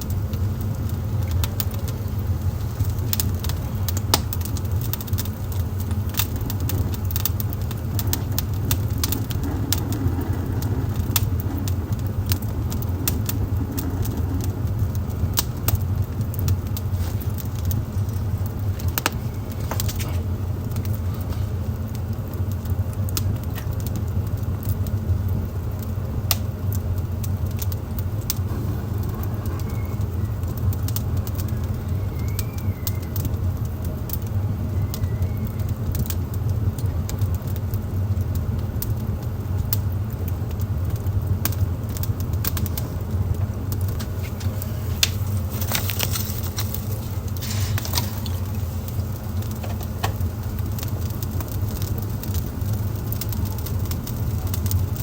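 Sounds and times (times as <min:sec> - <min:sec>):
wood fire crackling: 0:00.0 - 0:55.0
faint high chirps: 0:29.3 - 0:30.5.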